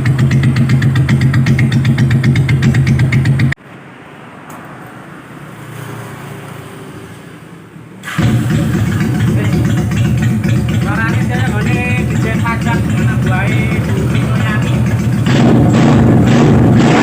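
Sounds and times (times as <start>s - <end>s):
motorcycle engine idling: 0.0s - 3.6s, 8.1s - 17.0s.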